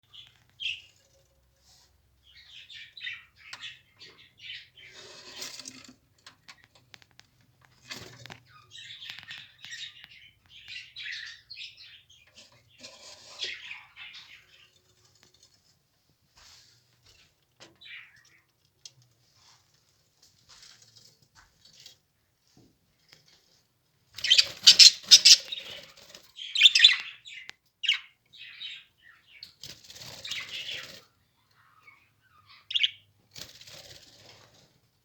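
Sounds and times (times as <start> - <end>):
lovebirds chirping: 0.0 - 1.0, 8.4 - 14.8, 24.2 - 29.5, 30.1 - 33.1.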